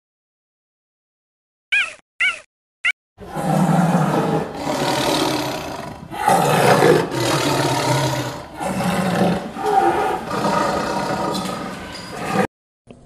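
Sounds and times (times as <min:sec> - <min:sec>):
tiger roaring: 0:03.2 - 0:12.5.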